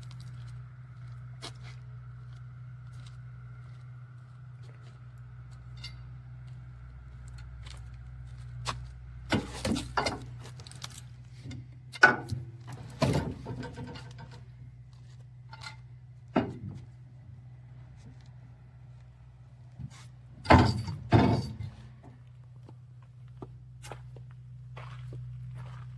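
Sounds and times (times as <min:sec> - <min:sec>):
wooden knocks and clunks: 0:20.5 - 0:21.8.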